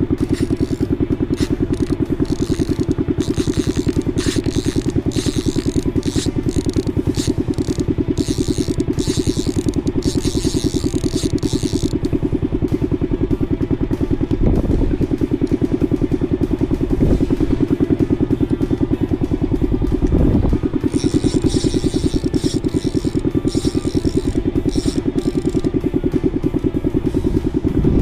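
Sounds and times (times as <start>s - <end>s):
boat engine putt-putt: 0.0s - 28.0s.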